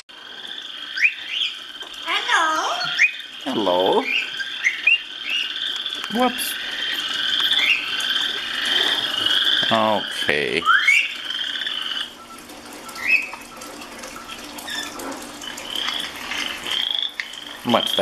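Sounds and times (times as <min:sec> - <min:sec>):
parrot raspy croaking calls: 0:00.1 - 0:12.2, 0:14.6 - 0:18.0
parrot squeaks and chirps: 0:10.6 - 0:11.2, 0:13.0 - 0:13.4, 0:14.6 - 0:15.0.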